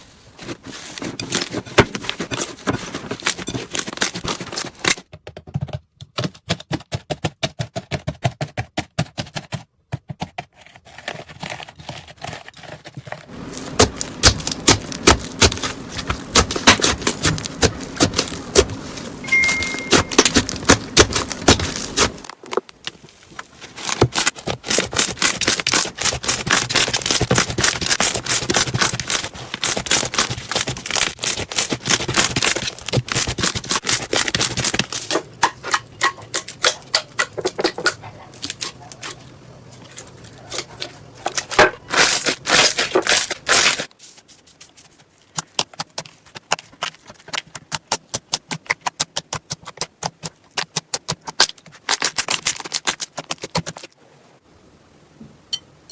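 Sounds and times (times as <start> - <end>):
slime crackling and popping: 13.5 - 22.9, 23.8 - 37.5, 45.4 - 53.9.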